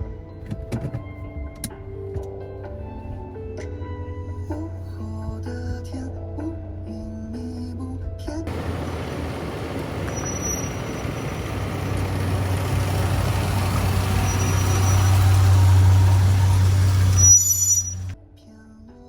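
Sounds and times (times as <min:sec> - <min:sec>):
road and wind noise: 0:08.5 - 0:18.2
vehicle engine hum: 0:08.5 - 0:18.2.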